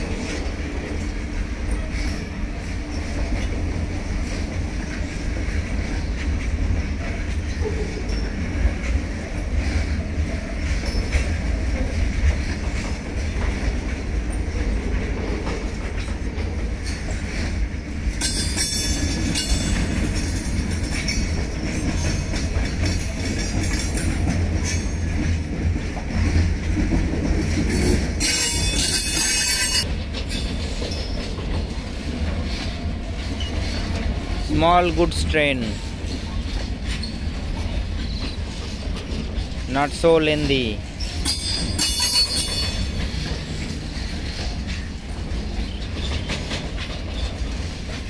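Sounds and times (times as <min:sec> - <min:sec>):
freight wagon wheels rumbling: 0:00.0 - 0:48.0.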